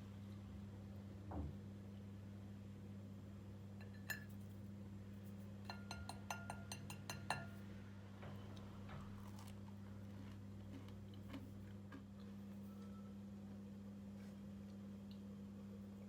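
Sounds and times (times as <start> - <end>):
cutlery clinking on tableware: 3.8 - 4.4, 5.7 - 7.6.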